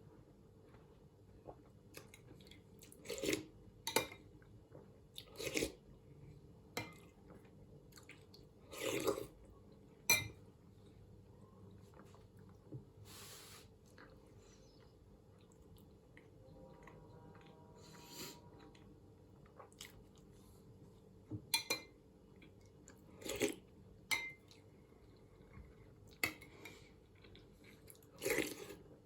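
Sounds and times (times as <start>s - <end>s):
slurping and chewing: 1.5s - 3.6s, 5.1s - 5.8s, 7.9s - 9.4s, 15.4s - 20.6s, 22.4s - 23.7s, 26.1s - 28.9s.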